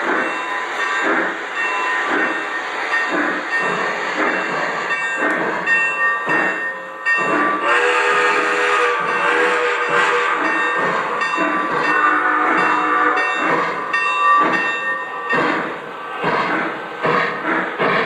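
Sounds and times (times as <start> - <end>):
model steam locomotive chuffing: 0.0 - 18.0
train whistle chord: 7.3 - 10.7, 11.8 - 13.4.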